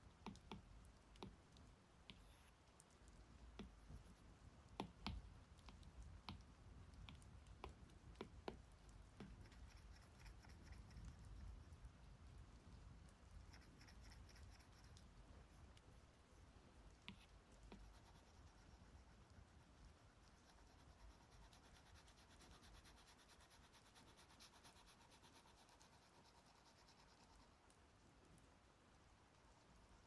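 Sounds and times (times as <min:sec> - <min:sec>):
stylus scratching on glass screen: 0:02.1 - 0:02.6, 0:09.2 - 0:11.9, 0:13.4 - 0:16.1, 0:17.1 - 0:27.6, 0:29.4 - 0:30.0.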